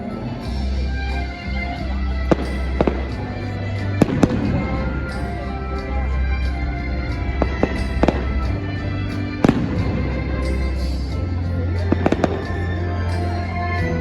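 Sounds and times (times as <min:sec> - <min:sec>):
loud show music: 0:00.0 - 0:14.0
fireworks bursting with bangs: 0:02.2 - 0:05.7, 0:07.2 - 0:08.8, 0:09.4 - 0:10.8.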